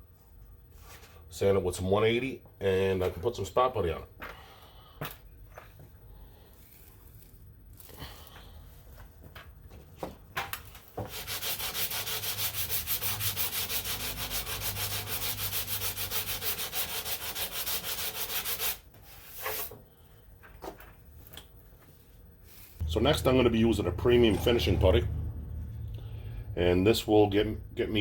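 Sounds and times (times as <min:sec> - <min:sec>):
sanding block scraping filler: 0:11.1 - 0:19.7.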